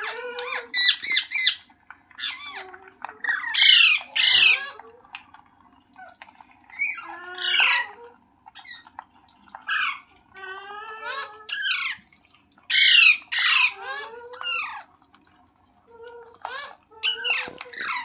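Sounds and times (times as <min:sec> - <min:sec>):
parakeet squawking: 0:00.0 - 0:04.8, 0:06.7 - 0:08.0, 0:09.7 - 0:12.0, 0:12.7 - 0:14.9, 0:16.4 - 0:18.0.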